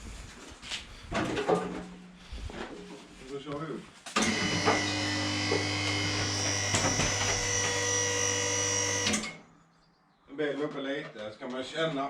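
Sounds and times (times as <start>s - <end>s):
electric pump whining: 4.2s - 9.4s.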